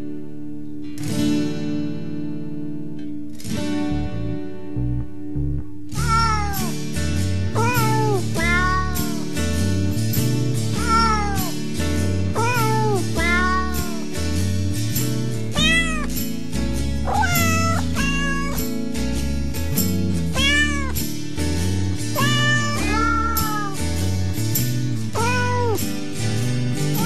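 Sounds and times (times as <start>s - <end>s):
background music with bass line: 3.9s - 27.0s
cat meowing: 6.0s - 6.8s, 7.6s - 9.2s, 10.8s - 11.5s, 12.4s - 14.0s, 15.6s - 16.2s, 17.1s - 18.6s, 20.3s - 21.0s, 22.2s - 23.8s, 25.2s - 25.8s.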